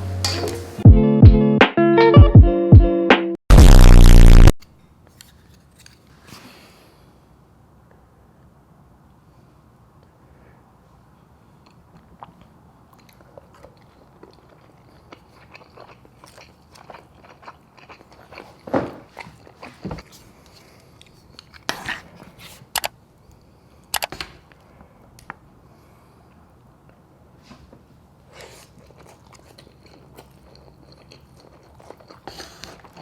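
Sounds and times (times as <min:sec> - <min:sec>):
person chewing: 0:11.6 - 0:24.7, 0:28.3 - 0:33.0.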